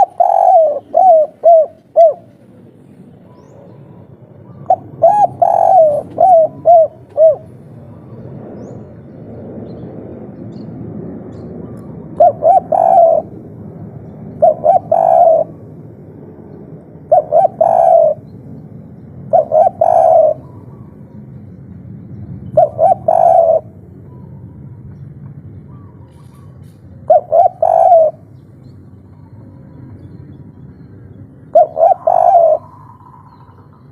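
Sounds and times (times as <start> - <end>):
dove cooing: 0.0 - 2.6, 3.2 - 8.7, 11.6 - 13.4, 14.1 - 15.8, 17.0 - 18.3, 19.2 - 21.2, 22.4 - 24.8, 25.6 - 33.9
low steady background hum: 0.0 - 33.9.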